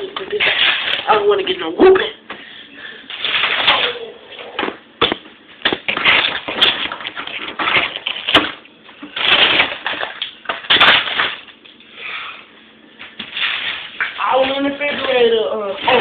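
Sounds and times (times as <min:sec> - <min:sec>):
food packages rustling: 0:00.2 - 0:01.5, 0:02.9 - 0:04.7, 0:05.6 - 0:11.8.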